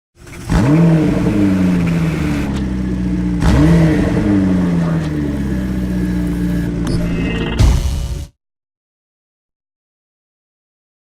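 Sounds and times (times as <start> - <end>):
car engine revving: 0.2 - 6.9.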